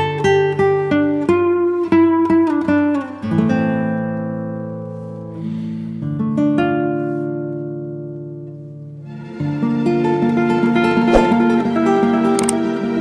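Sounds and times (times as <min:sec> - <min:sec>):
acoustic guitar playing: 0:00.0 - 0:09.0.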